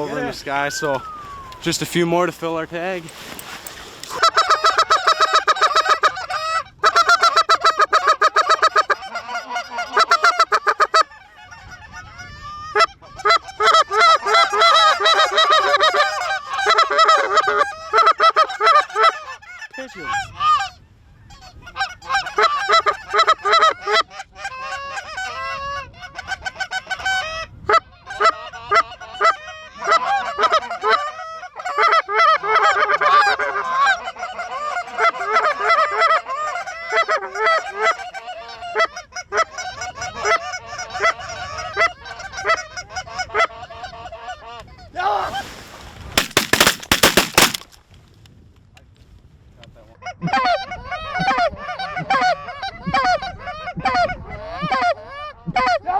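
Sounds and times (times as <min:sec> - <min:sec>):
geese honking: 0:03.7 - 0:11.4, 0:12.8 - 0:19.5
sharp loud cracks: 0:46.2 - 0:47.8.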